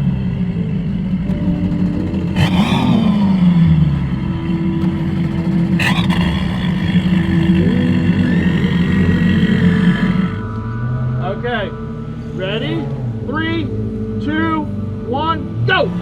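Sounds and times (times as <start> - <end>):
large engine idling: 0.0 - 11.0.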